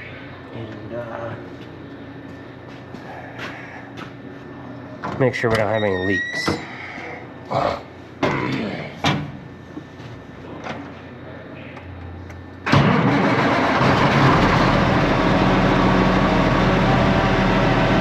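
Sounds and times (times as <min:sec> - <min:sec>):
truck engine cranking and idling: 0:12.6 - 0:18.0.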